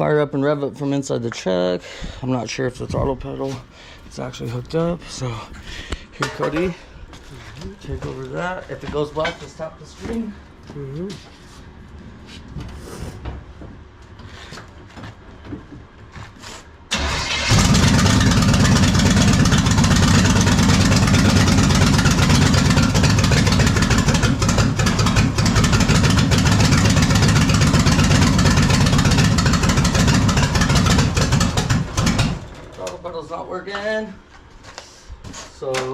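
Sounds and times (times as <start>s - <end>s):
engine cranking: 16.9s - 32.8s
race engine running loud: 17.4s - 32.4s.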